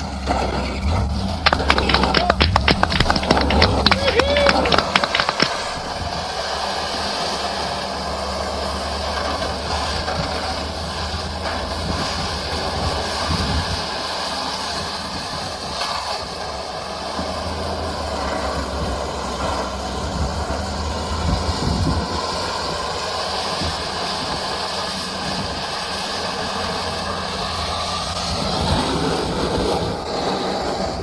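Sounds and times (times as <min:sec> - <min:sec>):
vehicle rumble and hiss: 0:06.5 - 0:31.0.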